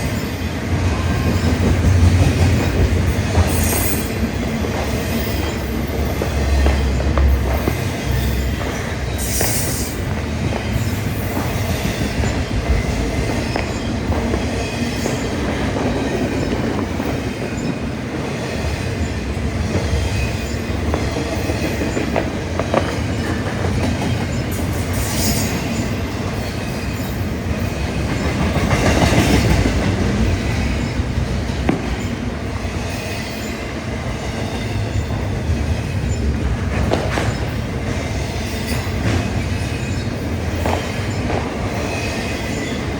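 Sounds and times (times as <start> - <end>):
steel wheels rumbling on rail: 0.0 - 42.9
wheel squeals: 3.4 - 4.2.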